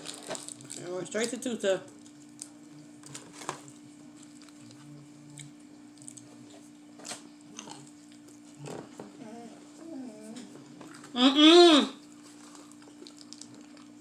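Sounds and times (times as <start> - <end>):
person chewing crunchy food: 2.0 - 8.8, 12.0 - 14.0.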